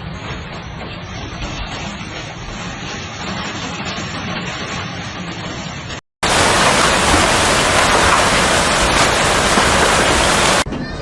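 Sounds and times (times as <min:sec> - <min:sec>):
hail and heavy rain: 0:06.2 - 0:10.7.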